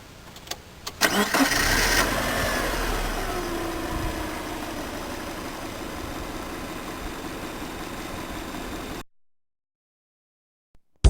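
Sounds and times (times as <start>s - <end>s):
car engine idling: 1.0s - 9.0s.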